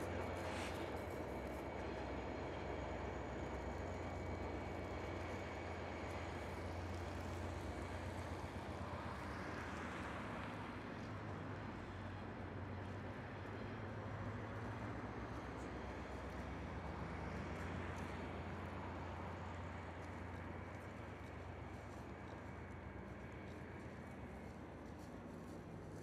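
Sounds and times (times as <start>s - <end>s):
train engine hum: 0.0s - 26.0s
train rumble: 0.0s - 26.0s.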